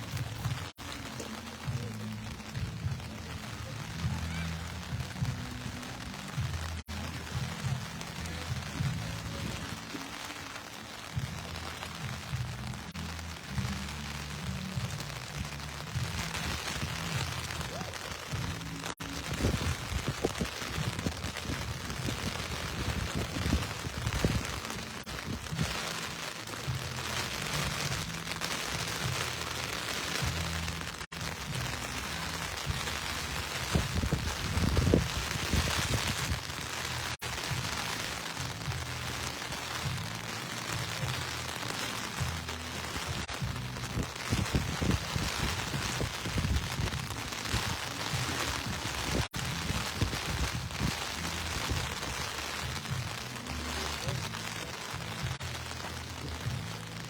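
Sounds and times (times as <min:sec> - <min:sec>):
steady rain falling: 0:00.0 - 0:57.0
low thumps and rumbles: 0:11.1 - 0:26.0, 0:26.6 - 0:53.3.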